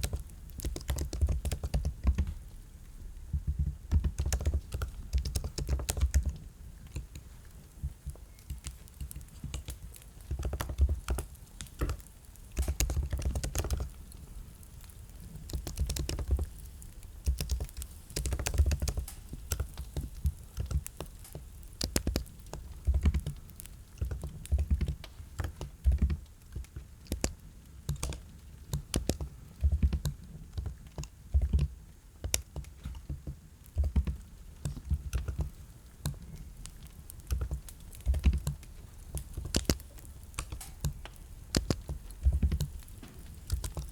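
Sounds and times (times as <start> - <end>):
keyboard typing: 0.0 - 2.3, 3.4 - 6.4, 12.6 - 14.0, 15.4 - 16.6, 17.2 - 23.4, 24.0 - 31.7, 33.8 - 43.9.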